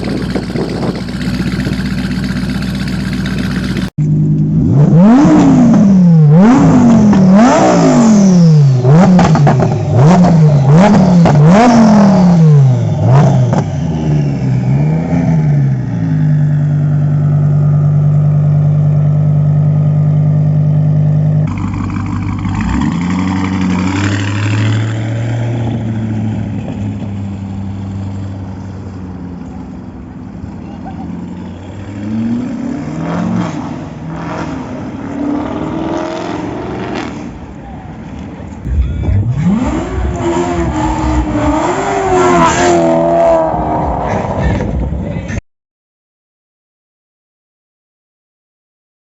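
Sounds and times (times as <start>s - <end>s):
car engine revving and idling: 0.0s - 45.4s
lower engine note: 38.5s - 45.3s.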